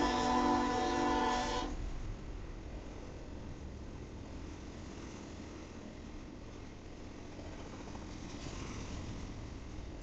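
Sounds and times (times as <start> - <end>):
steel wheels on rails: 0.0 - 1.8, 6.5 - 10.0.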